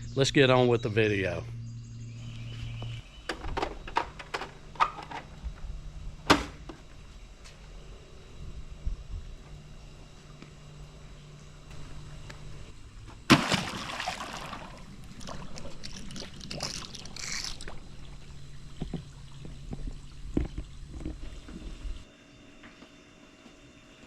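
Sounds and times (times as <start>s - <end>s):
water splashing and sloshing: 13.1s - 22.1s
loud splash: 13.3s - 14.9s.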